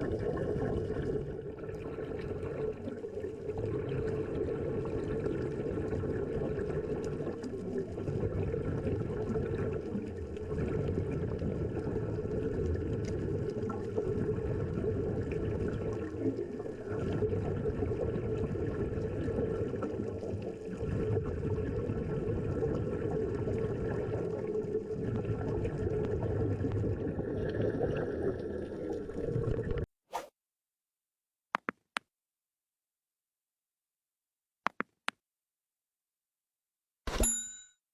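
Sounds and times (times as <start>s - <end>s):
muffled underwater watery rush: 0.0s - 29.8s.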